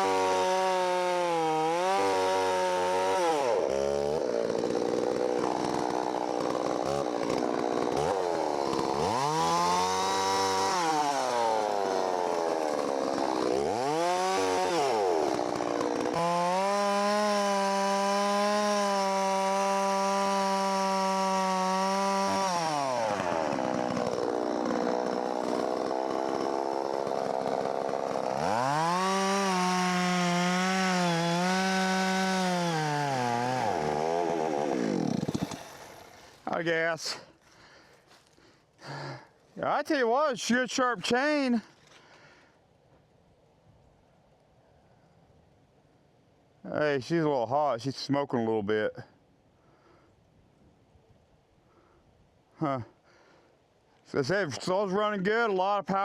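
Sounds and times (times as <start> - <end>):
chainsaw cutting through log: 0.0 - 39.4.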